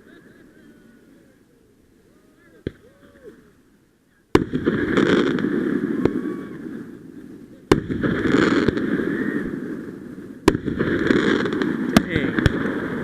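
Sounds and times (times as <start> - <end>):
firework crackling: 0.0 - 13.0
firework bangs: 4.3 - 13.0.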